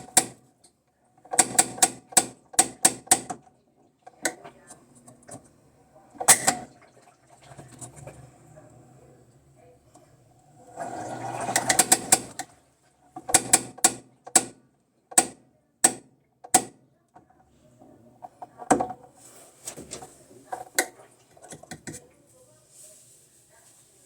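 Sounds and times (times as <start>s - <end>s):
sharp clicks and knocks: 13.2s - 16.8s.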